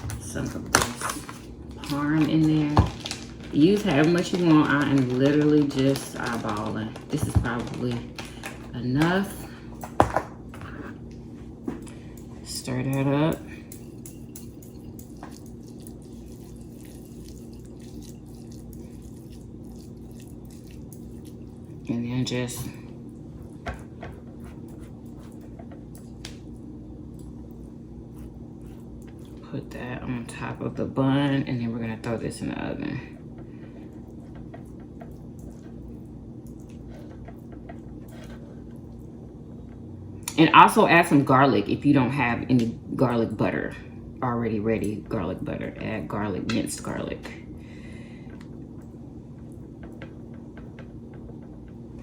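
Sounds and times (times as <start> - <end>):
steady low hum: 0.0 - 52.0
brush dabbing wet butter: 14.9 - 22.2.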